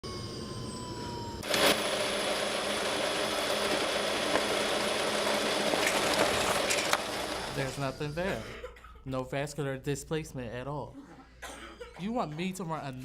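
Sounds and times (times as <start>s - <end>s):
machine whirring and humming: 0.0s - 8.2s.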